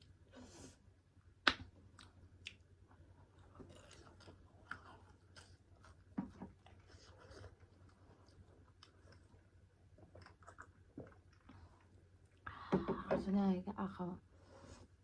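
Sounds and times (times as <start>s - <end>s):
close-up chewing with wet crunches: 1.6s - 12.4s.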